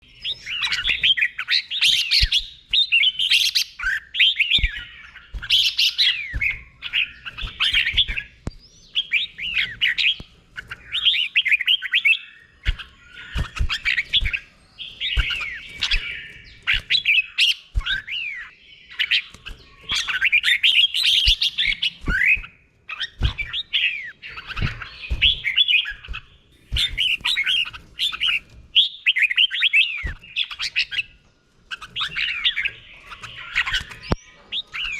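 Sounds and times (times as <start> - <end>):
bird singing whistled phrases: 0.0 - 10.2, 26.8 - 31.1.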